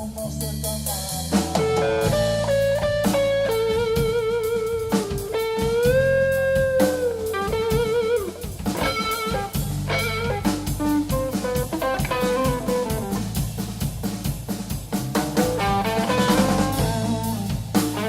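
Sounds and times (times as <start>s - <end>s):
bass guitar: 0.0s - 18.0s
drums: 0.0s - 18.0s
lead guitar solo: 1.6s - 13.3s, 15.6s - 18.0s.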